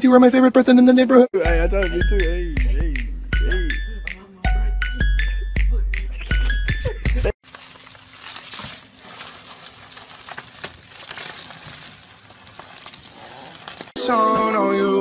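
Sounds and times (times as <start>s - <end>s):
plastic tube crinkling: 7.4s - 14.0s.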